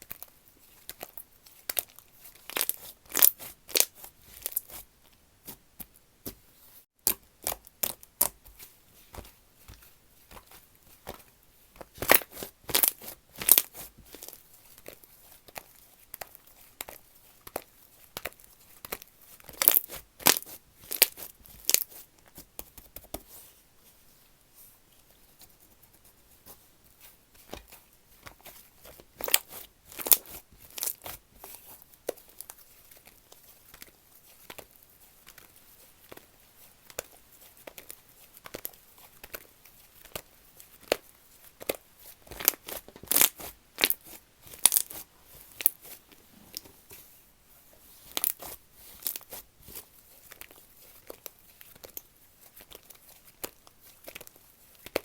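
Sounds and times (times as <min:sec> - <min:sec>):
slime crackling and popping: 0:00.9 - 0:04.7, 0:11.8 - 0:21.9, 0:29.2 - 0:31.2, 0:41.6 - 0:45.0, 0:48.1 - 0:52.0.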